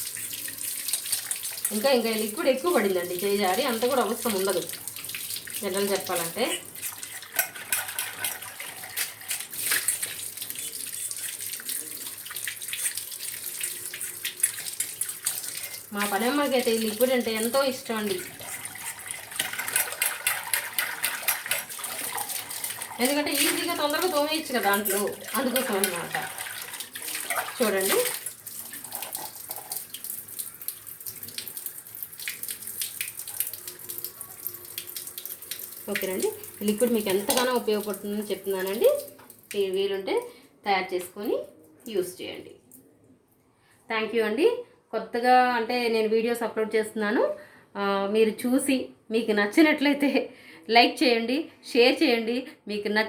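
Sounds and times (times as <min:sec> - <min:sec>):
tap water running into sink: 0:00.0 - 0:39.6
splashing as pot is rinsed: 0:00.0 - 0:39.7.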